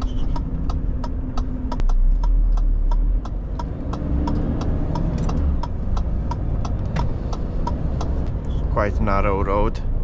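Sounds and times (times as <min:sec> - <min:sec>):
indicator relay ticking: 0:00.0 - 0:08.6
diesel engine rumbling: 0:00.0 - 0:10.0.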